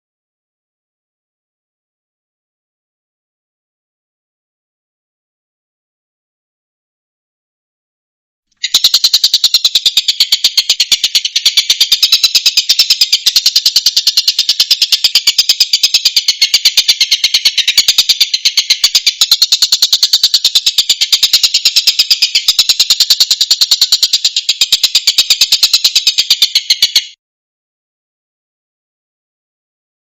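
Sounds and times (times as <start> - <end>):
kingfisher rattling call: 8.6 - 27.2.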